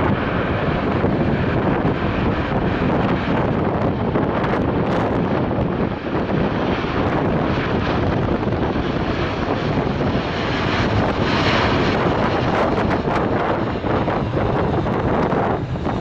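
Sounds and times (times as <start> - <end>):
jet engine noise: 0.0 - 16.0
wind buffeting microphone: 0.0 - 16.0.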